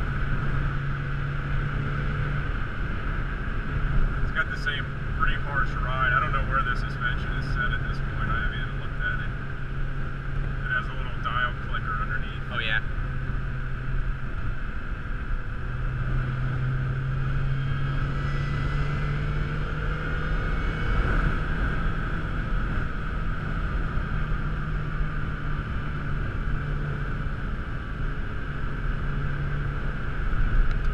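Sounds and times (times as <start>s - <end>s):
car engine droning: 0.0s - 30.9s
road and wind noise: 0.0s - 30.9s.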